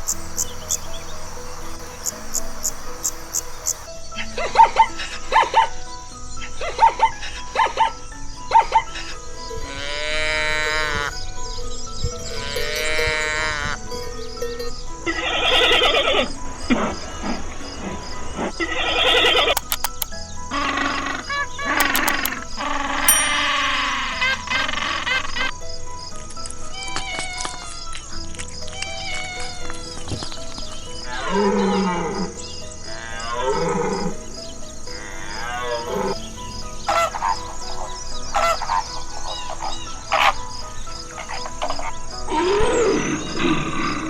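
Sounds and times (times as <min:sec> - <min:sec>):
faint background music: 0:00.0 - 0:44.0.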